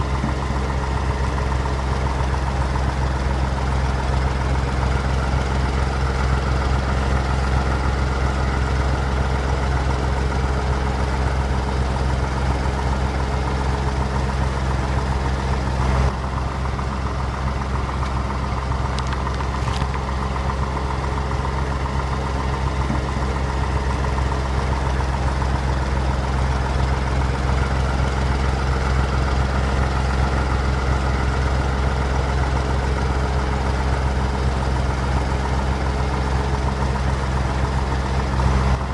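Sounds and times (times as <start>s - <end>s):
heavy vehicle engine idling: 0.0s - 38.9s.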